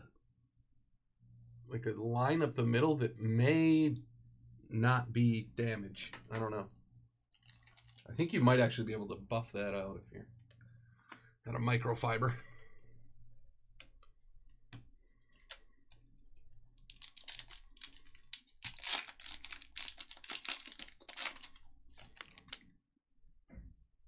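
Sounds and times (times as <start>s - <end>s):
trading cards rustling and clicking: 16.7s - 22.7s.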